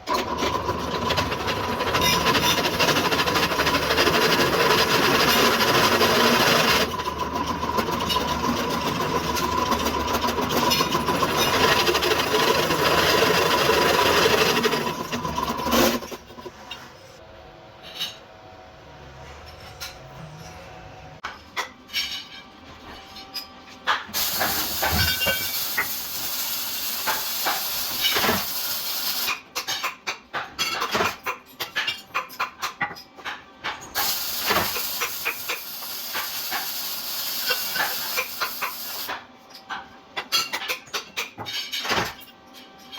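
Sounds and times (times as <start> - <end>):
hissing machine with faint whine: 23.9 - 29.4, 34.0 - 39.2.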